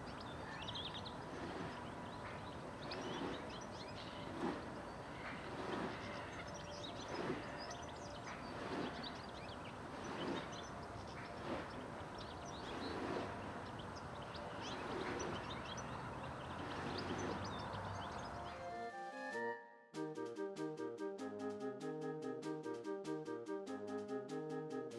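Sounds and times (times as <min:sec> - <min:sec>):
songbirds chirping: 0:00.0 - 0:18.8.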